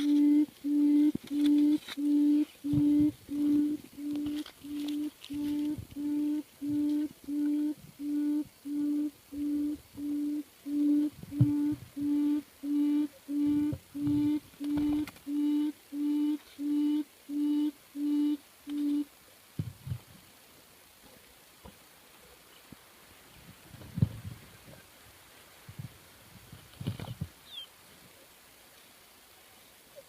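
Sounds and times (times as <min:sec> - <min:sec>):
low hoot from a speaker: 0:00.0 - 0:19.1.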